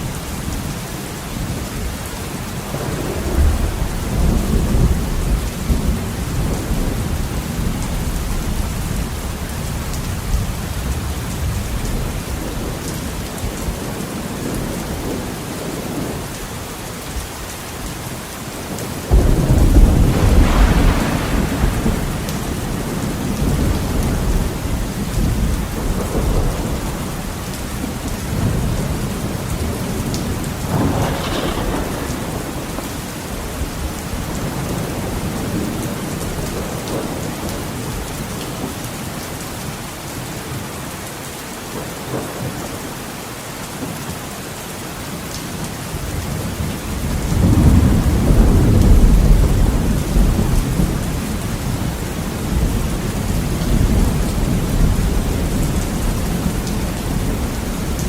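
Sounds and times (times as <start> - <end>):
heavy rain on a window: 0.0 - 58.0
thunder rumbling: 2.2 - 16.3, 18.6 - 38.8, 46.0 - 58.0.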